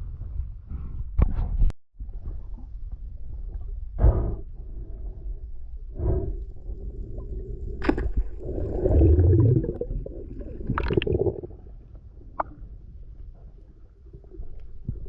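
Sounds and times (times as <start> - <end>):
water gurgling and sloshing: 2.0 - 15.0
low water surge: 6.0 - 12.4.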